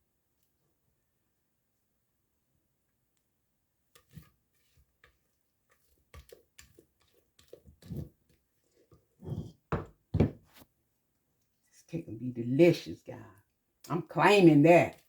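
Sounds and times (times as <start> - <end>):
scoop scraping in batter bowl: 4.0 - 9.6.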